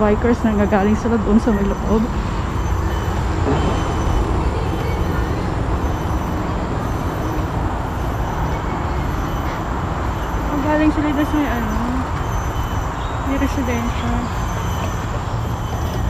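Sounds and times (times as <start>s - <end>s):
highway traffic rushing past: 0.0s - 16.0s.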